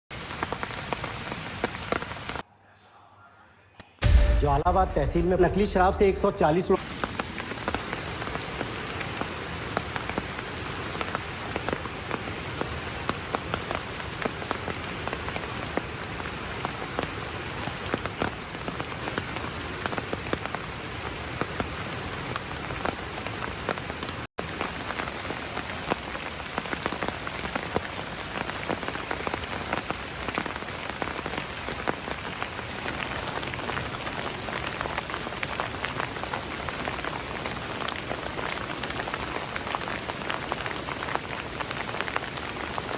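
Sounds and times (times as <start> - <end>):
heavy rain falling: 0.1 - 2.4, 4.2 - 42.9.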